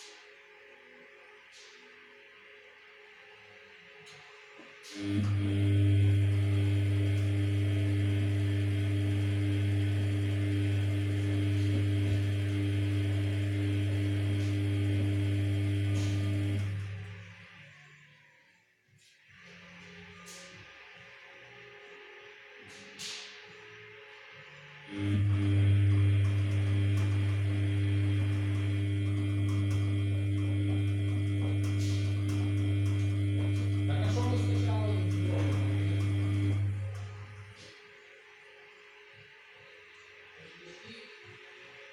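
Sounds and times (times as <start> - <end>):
washing machine electrical hum: 4.6 - 17.4, 24.9 - 38.1.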